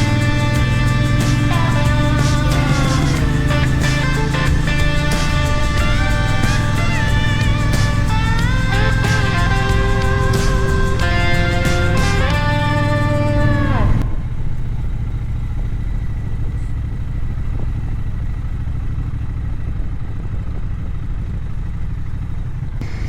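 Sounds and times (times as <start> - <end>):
musical chord sliding down: 0.0 - 14.4
motorcycle engine running: 0.0 - 23.0.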